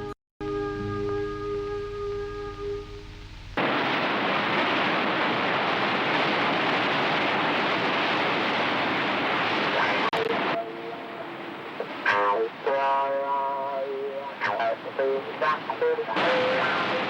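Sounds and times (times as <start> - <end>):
river rapids rushing: 3.6 - 17.0.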